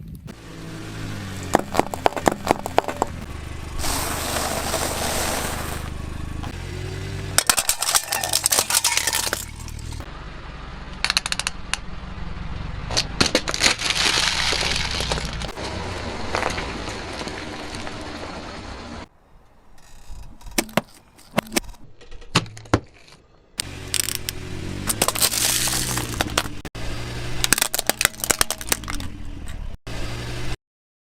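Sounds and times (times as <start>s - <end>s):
car engine humming: 0.0s - 13.3s, 23.6s - 30.6s
tyres crushing brittle objects: 3.8s - 5.9s, 7.4s - 10.0s, 13.0s - 18.0s, 23.9s - 26.6s, 27.4s - 29.1s.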